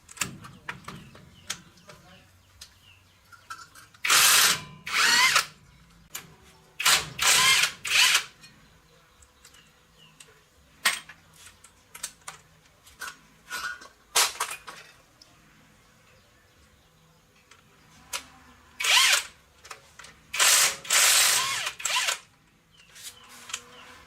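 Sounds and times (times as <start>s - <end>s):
power tool motor whine: 4.1s - 5.5s, 6.8s - 8.3s, 20.4s - 22.2s.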